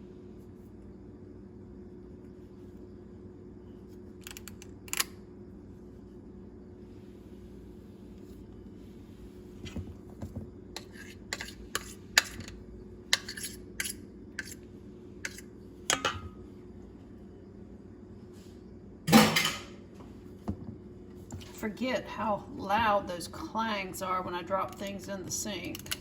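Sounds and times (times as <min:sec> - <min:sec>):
utensil clinking against dishes: 0:15.3 - 0:16.4
object clanging into sink: 0:19.1 - 0:19.7.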